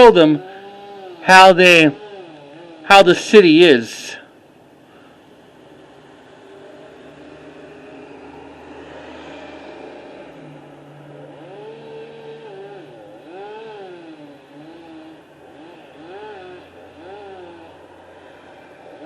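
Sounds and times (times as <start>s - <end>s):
chainsaw engine revving: 0.0s - 4.3s, 5.5s - 19.0s
low engine hum: 4.3s - 19.0s.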